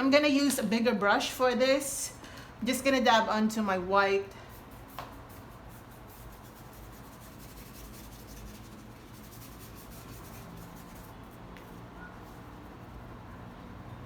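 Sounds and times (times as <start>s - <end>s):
paintbrush scratchy rubbing strokes: 4.5s - 13.2s.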